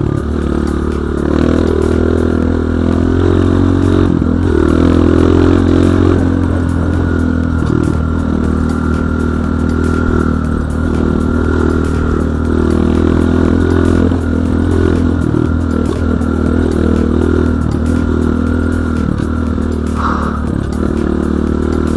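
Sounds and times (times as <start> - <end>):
dirt bike engine running: 0.0 - 21.9.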